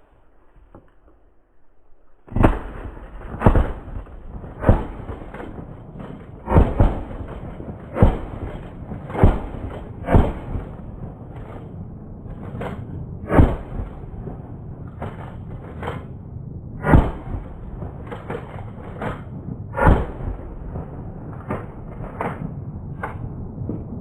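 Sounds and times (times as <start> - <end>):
shotgun shots: 2.2 - 14.2, 16.8 - 23.2.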